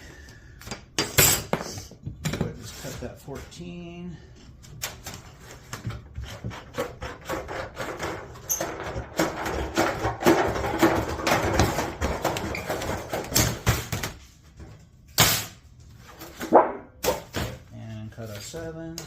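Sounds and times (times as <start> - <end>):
sheet metal scraping and rustling: 2.5 - 3.7.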